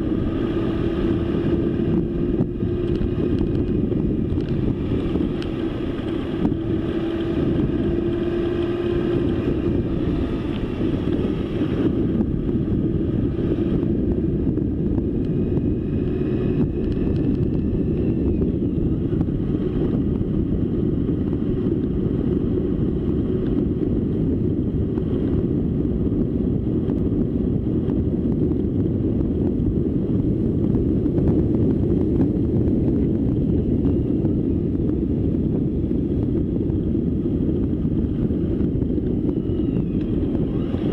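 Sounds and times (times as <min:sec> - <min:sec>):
bike rumble: 0:00.0 - 0:40.9
wind buffeting microphone: 0:00.0 - 0:40.9.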